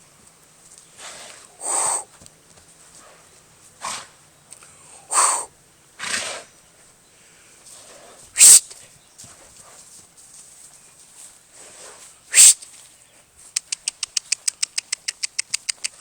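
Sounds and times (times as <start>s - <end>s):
animal making breathy sounds: 1.0s - 2.2s, 4.6s - 5.5s.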